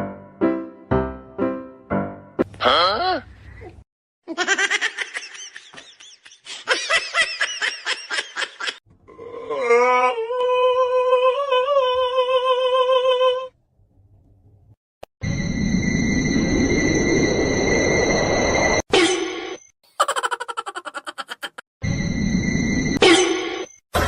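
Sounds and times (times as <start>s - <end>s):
person laughing: 19.9s - 21.6s.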